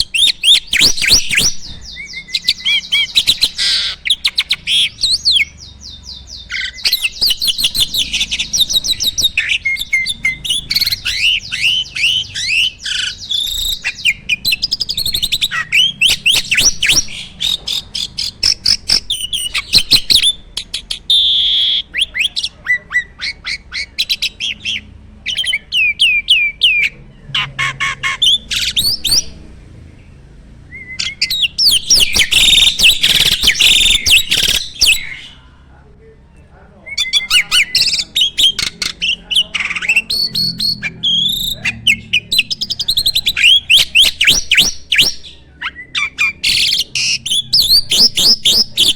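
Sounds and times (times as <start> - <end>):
starling singing: 0.0 - 48.9.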